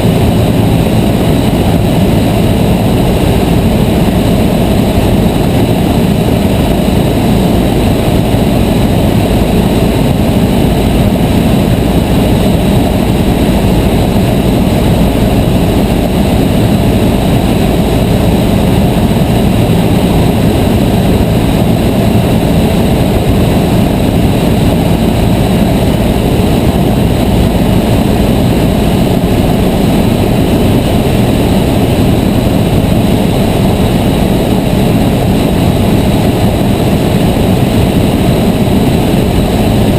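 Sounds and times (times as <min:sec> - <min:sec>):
airplane engine drone: 0:00.0 - 0:39.9.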